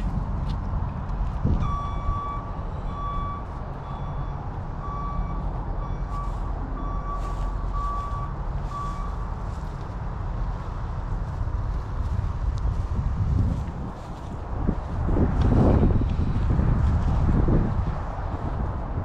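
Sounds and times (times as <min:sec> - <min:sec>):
steady low rumble: 0:00.0 - 0:19.0
vehicle warning beeper beeps: 0:01.6 - 0:09.4.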